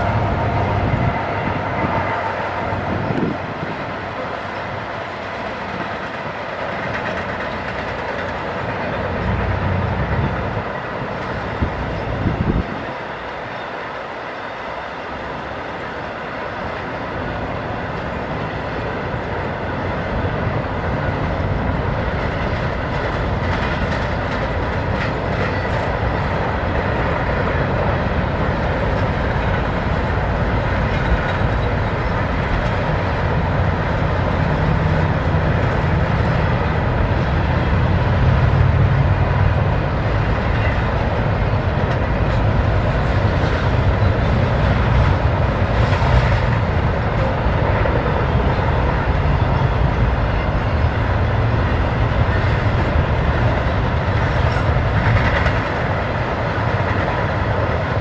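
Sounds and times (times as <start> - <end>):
freight train cars rumbling and rattling: 0.0 - 58.0.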